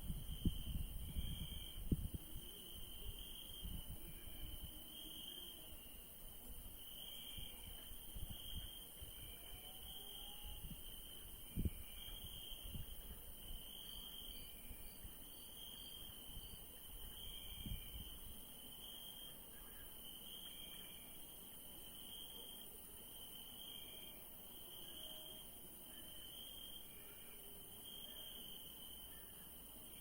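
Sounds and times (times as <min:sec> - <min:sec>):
crickets chirping: 0:00.0 - 0:30.0
high insect hiss: 0:00.0 - 0:30.0.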